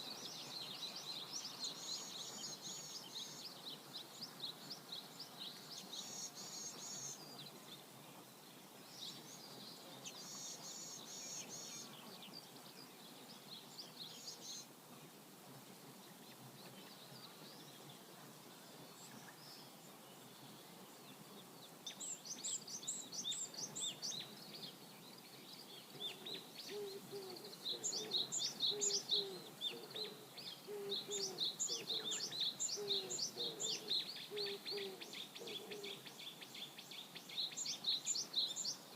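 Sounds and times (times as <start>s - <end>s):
songbirds singing: 0.0s - 38.9s
low bird call: 26.0s - 36.0s.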